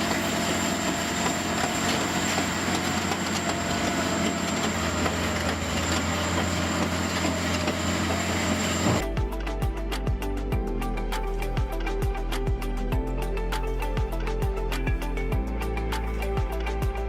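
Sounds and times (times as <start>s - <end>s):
heavy machinery running: 0.0s - 9.0s
thin high whine: 0.0s - 9.2s.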